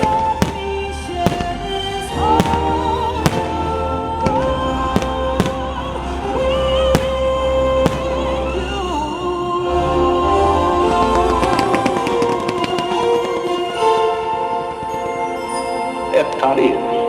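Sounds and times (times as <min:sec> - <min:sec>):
fireworks bangs: 0:00.0 - 0:09.1, 0:11.4 - 0:13.5.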